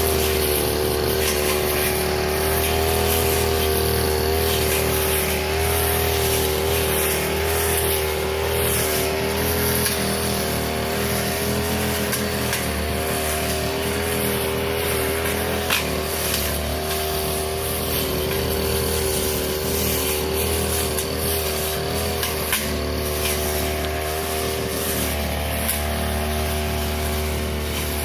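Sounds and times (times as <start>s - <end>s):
brush cutter cutting grass: 0.0s - 28.0s.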